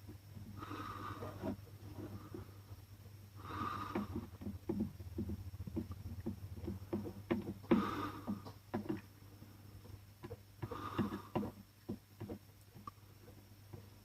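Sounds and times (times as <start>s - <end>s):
low electrical hum: 0.0s - 14.0s
person breathing or sniffing: 0.6s - 2.5s, 3.4s - 4.4s, 7.7s - 8.5s, 10.6s - 11.5s
soldering iron tapping on plastic: 3.9s - 9.1s, 10.2s - 12.5s.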